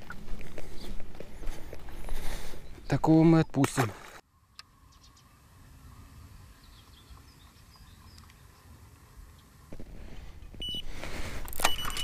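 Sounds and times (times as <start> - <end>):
short high beep: 11.6 - 12.0.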